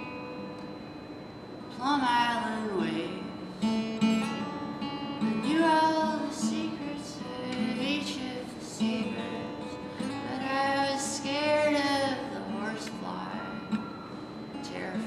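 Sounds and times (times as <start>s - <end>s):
acoustic guitar strumming: 0.0s - 15.0s
person singing: 5.4s - 13.7s.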